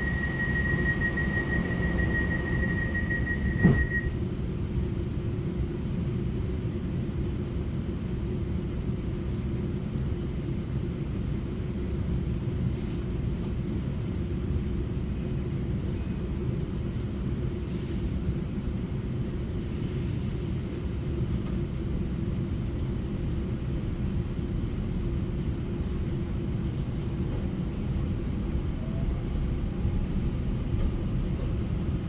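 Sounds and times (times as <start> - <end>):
thin high steady tone: 0.0 - 3.6
train rumble inside carriage: 0.0 - 32.0.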